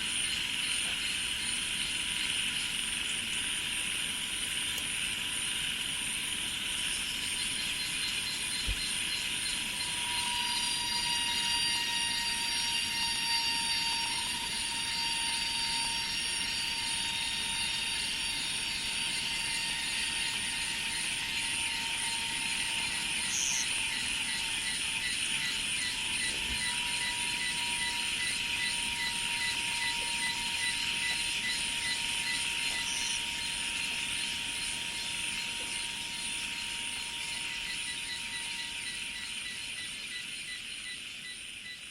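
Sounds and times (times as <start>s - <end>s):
insects buzzing and trilling: 0.0s - 41.9s
low whistle-like tone: 9.8s - 17.9s.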